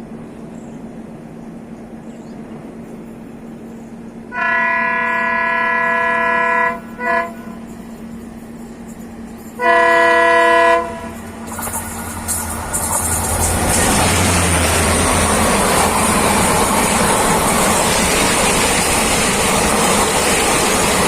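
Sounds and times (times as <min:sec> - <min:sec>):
moving train running noise: 0:00.0 - 0:21.0
train horn blasts: 0:04.3 - 0:07.8, 0:09.6 - 0:11.3.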